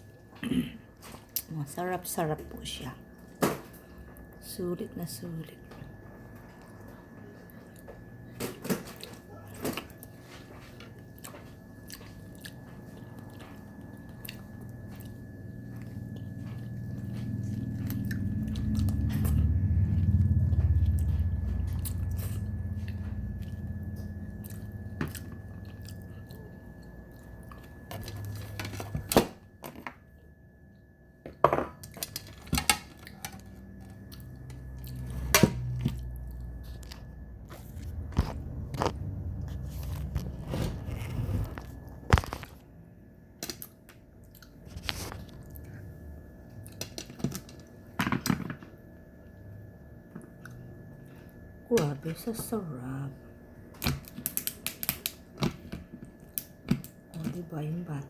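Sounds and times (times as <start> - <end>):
person chewing crab: 6.6 - 28.6, 31.9 - 40.0, 43.4 - 46.0
low rumble: 15.8 - 26.2, 33.8 - 42.1.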